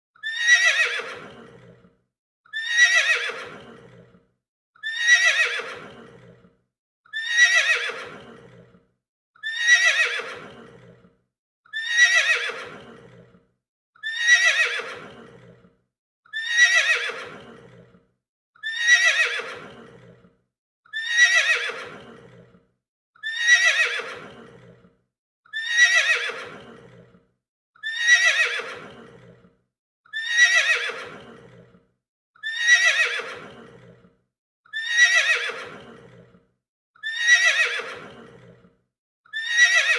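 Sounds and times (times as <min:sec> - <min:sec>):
horse neighing: 0:00.2 - 0:01.8, 0:02.6 - 0:04.1, 0:04.8 - 0:06.4, 0:07.2 - 0:08.7, 0:09.4 - 0:11.0, 0:11.8 - 0:13.3, 0:14.0 - 0:15.6, 0:16.4 - 0:17.9, 0:18.6 - 0:20.2, 0:21.0 - 0:22.5, 0:23.3 - 0:24.8, 0:25.6 - 0:27.1, 0:27.9 - 0:29.4, 0:30.2 - 0:31.7, 0:32.5 - 0:34.0, 0:34.8 - 0:36.3, 0:37.1 - 0:38.6.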